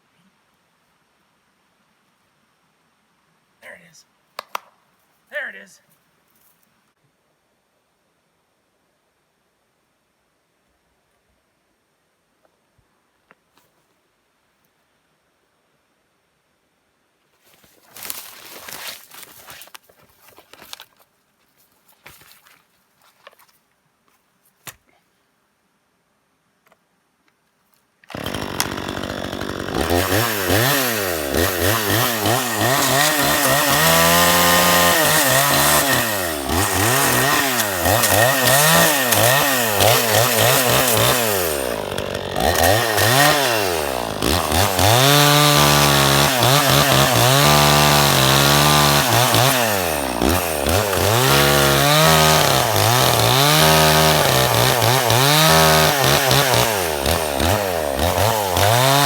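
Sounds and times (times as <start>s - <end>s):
chainsaw revving cutting wood: 28.1s - 59.0s.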